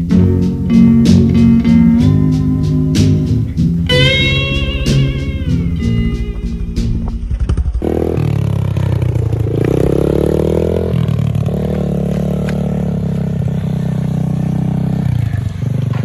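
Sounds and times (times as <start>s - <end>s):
small motorbike engine revving: 6.3s - 16.0s.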